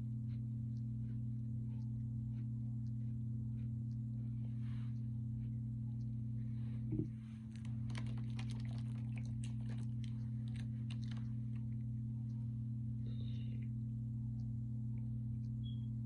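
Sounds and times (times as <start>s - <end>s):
low electrical hum: 0.0s - 16.0s
crunchy eating: 7.2s - 12.2s.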